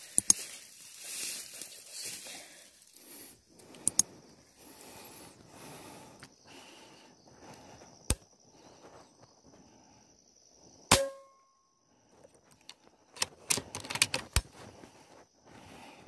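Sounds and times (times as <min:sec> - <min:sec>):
sharp clicks: 0:00.1 - 0:00.4, 0:03.6 - 0:04.1, 0:12.5 - 0:14.5.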